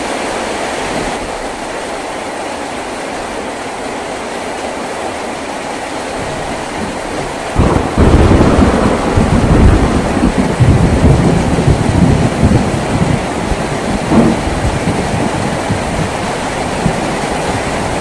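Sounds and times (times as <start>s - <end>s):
heavy rain on a tin roof: 0.0s - 18.0s
thunder rumbling: 6.2s - 18.0s.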